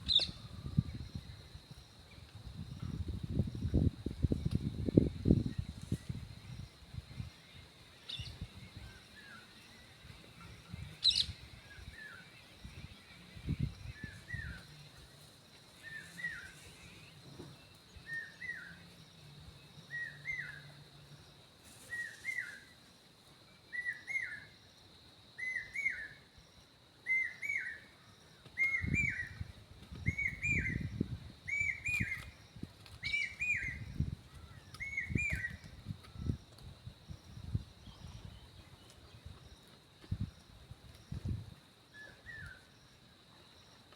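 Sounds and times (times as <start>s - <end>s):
high insect whine: 0.0s - 43.9s
bird chirping: 4.9s - 14.9s, 30.0s - 36.4s.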